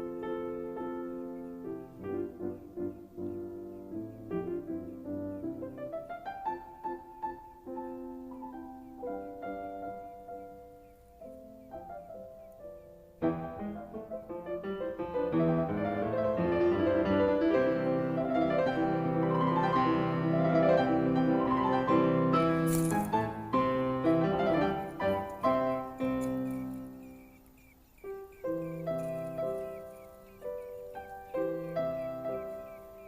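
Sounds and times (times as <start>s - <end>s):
piano music: 0.0s - 33.0s.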